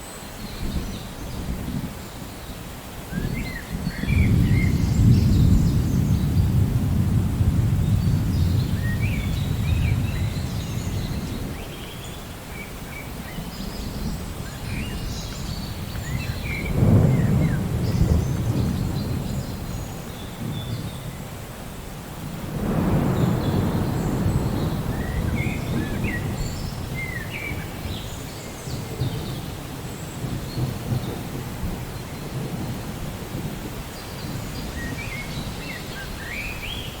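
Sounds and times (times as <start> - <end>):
steady rain: 0.0 - 37.0
thunder rumbling: 3.1 - 11.7, 13.8 - 21.3, 22.2 - 35.6.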